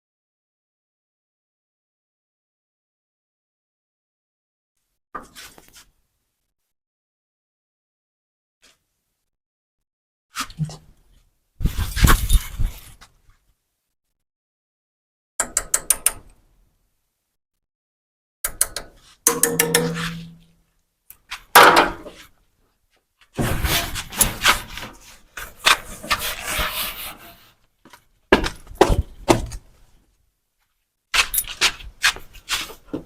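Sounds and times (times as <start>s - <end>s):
knocking and banging: 19.3s - 20.4s, 21.6s - 22.1s.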